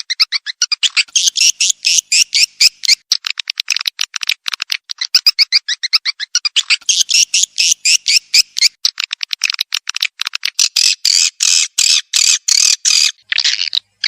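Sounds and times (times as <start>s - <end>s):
buzzy bird calls: 0.0s - 3.1s, 4.9s - 9.4s, 10.5s - 14.0s
swiftlet twittering chirps: 0.9s - 3.0s, 5.2s - 8.8s.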